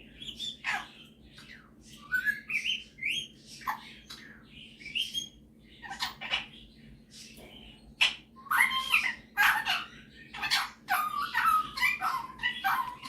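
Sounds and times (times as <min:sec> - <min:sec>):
parrot squawky chirps and whistles: 0:01.9 - 0:04.2, 0:04.8 - 0:06.5, 0:08.0 - 0:13.0.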